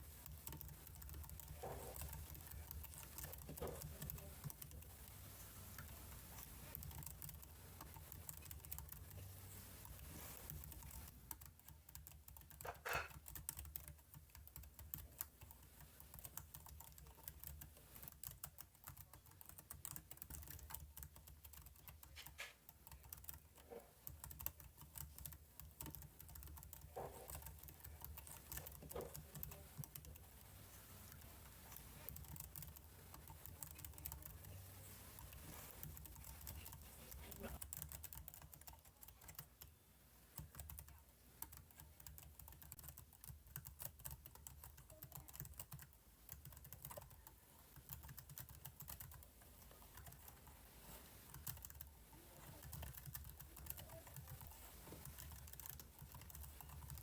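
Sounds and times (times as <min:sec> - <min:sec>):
computer keyboard typing: 0:00.0 - 0:39.7, 0:40.4 - 0:57.0.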